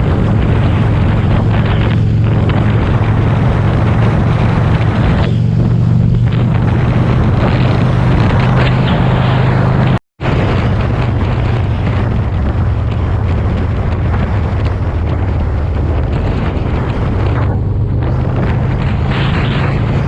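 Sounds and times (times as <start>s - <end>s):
motorcycle engine running: 0.0s - 20.0s
wind rush over microphone: 0.0s - 20.0s.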